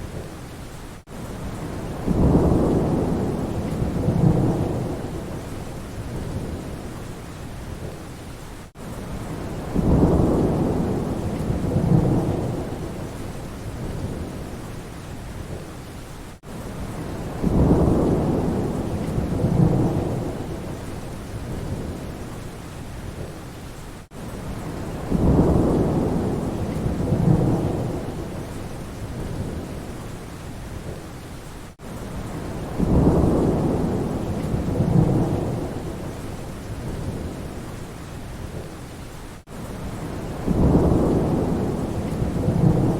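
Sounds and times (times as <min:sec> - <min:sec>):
steady rain: 0:00.0 - 0:42.9
thunder rumbling: 0:01.5 - 0:06.9, 0:09.2 - 0:14.6, 0:16.8 - 0:22.2, 0:24.5 - 0:29.9, 0:32.2 - 0:37.6, 0:39.8 - 0:42.9.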